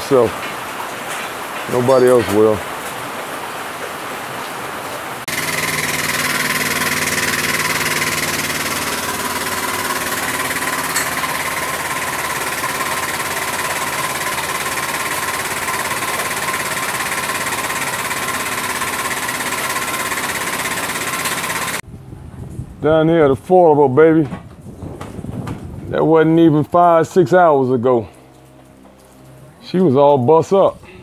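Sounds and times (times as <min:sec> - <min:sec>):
engine idling: 0:05.3 - 0:21.8.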